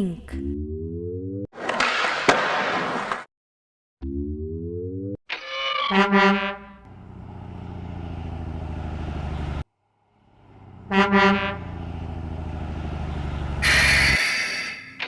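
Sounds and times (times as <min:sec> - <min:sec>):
truck horn honking: 0:05.8 - 0:07.0, 0:10.5 - 0:12.4, 0:13.4 - 0:14.2
diesel engine idling: 0:06.9 - 0:14.2
hissing air burst: 0:13.6 - 0:15.0.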